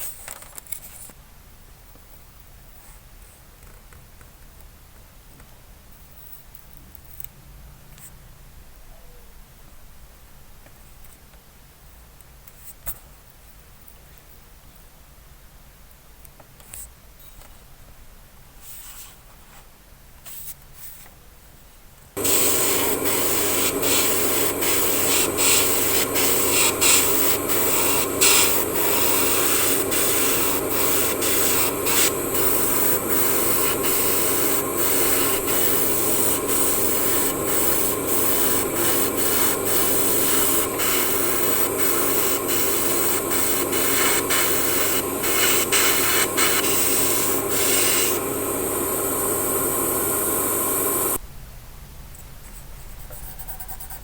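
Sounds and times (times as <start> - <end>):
power tool sanding metal: 22.2 - 51.2.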